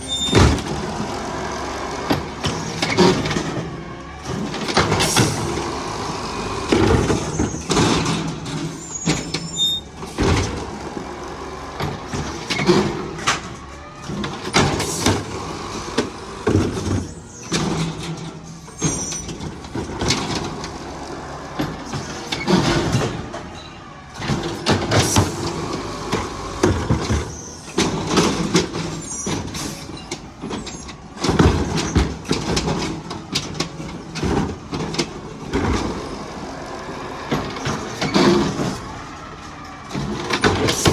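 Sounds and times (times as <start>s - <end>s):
high squeaks: 0.0s - 0.5s, 8.7s - 9.9s
diesel engine running: 0.0s - 40.9s.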